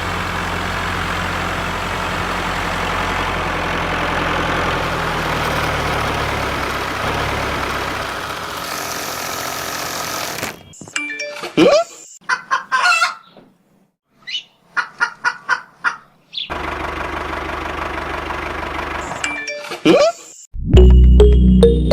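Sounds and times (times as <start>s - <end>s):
tractor engine running: 0.0s - 10.6s, 16.5s - 19.2s.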